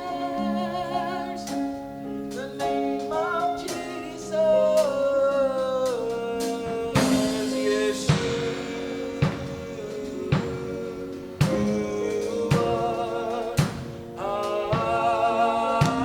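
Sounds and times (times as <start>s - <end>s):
accompanying instruments: 0.0s - 16.0s
person singing: 0.0s - 16.0s
drum hits: 6.4s - 15.2s, 15.8s - 16.0s.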